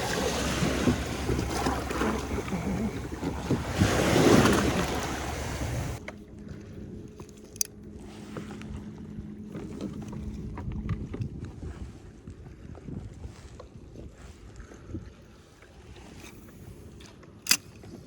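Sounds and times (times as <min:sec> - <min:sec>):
knocks and clicks against kayak: 0:00.0 - 0:06.2
wind buffeting microphone: 0:00.0 - 0:07.3, 0:07.9 - 0:17.0.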